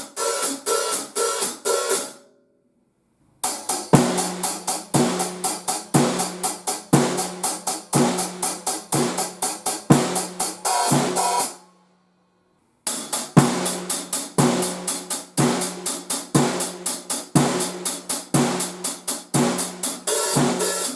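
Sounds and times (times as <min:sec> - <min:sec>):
hi-hat strokes: 0:00.0 - 0:02.2, 0:03.4 - 0:11.7, 0:12.9 - 0:20.9
kick and snare beat: 0:03.4 - 0:11.6, 0:12.9 - 0:20.9.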